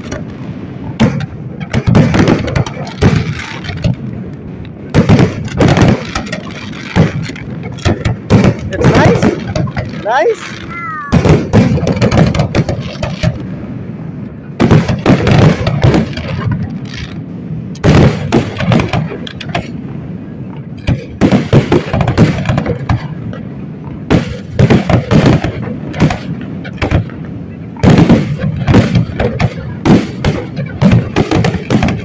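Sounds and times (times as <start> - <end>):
fireworks bursting: 0.0 - 32.0.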